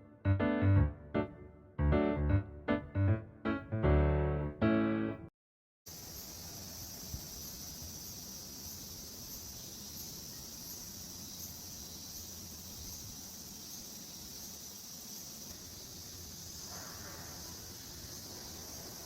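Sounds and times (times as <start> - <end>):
insects chirring: 5.9 - 19.0.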